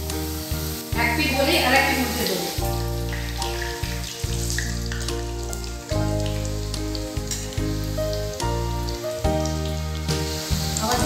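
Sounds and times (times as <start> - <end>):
dough deep-frying in hot oil: 0.0 - 11.0
instrumental music with deep bass: 2.6 - 11.0.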